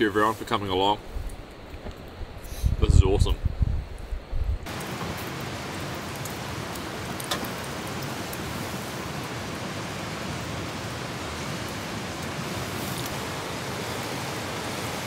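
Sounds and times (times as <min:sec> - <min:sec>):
steady rain hiss: 0:00.0 - 0:15.0
raindrop ticks: 0:04.6 - 0:08.5.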